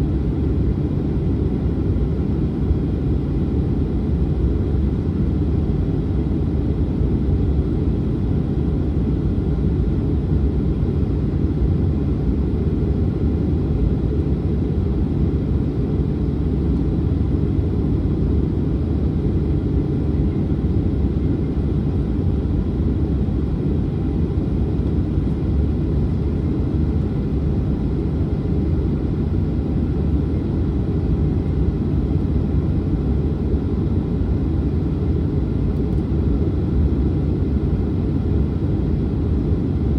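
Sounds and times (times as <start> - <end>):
jet engines low rumble: 0.0 - 39.9.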